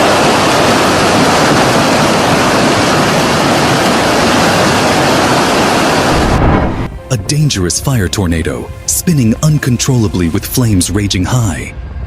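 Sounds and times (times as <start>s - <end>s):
loud rushing noise: 0.0s - 7.5s.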